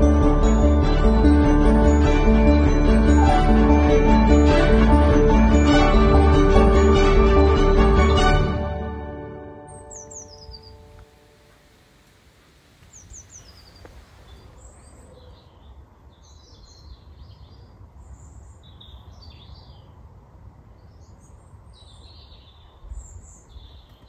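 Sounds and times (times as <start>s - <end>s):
small birds singing and chirping: 9.7s - 11.0s, 12.9s - 20.0s, 20.8s - 24.0s.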